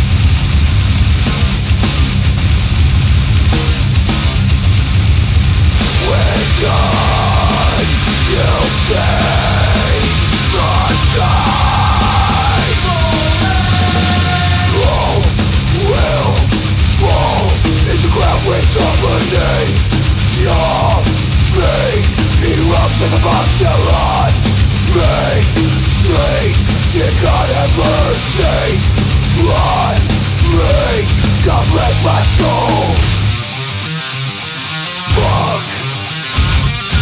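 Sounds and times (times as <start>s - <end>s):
heavy metal band playing: 0.0s - 37.0s
harsh yelled vocals: 5.8s - 33.4s, 34.9s - 37.0s.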